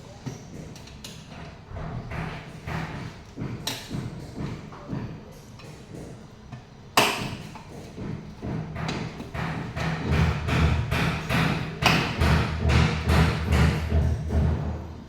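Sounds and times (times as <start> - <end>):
knocks and thuds: 1.8 - 5.1, 7.1 - 14.8.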